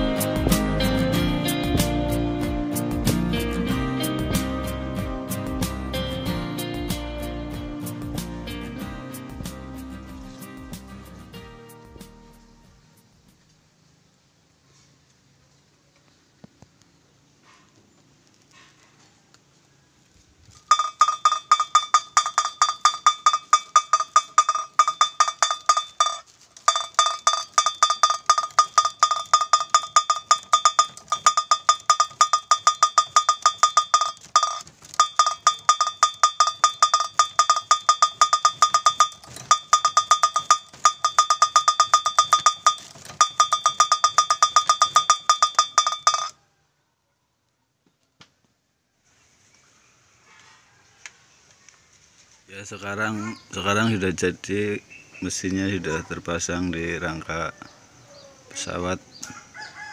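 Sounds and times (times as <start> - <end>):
bamboo kite clacker knocking: 20.6 - 46.4.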